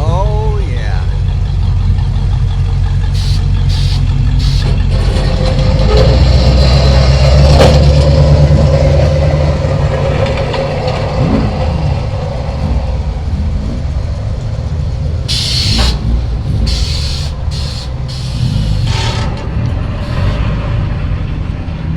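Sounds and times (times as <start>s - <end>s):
road rumble: 0.0s - 21.9s
truck engine rumbling past: 0.0s - 21.9s
short hisses: 3.2s - 4.8s, 15.3s - 19.2s, 20.0s - 20.5s.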